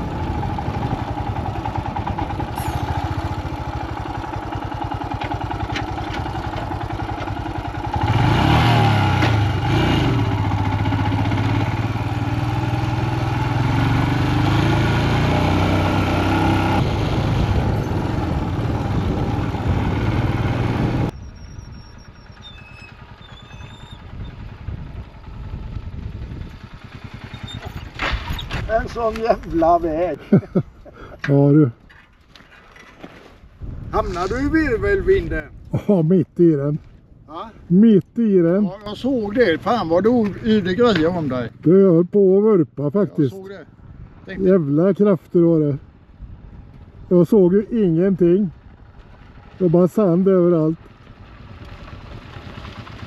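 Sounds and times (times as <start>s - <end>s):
motorcycle engine running: 0.0s - 28.0s, 38.7s - 41.8s, 45.8s - 53.0s
road noise: 0.0s - 53.0s
wind: 0.0s - 53.0s.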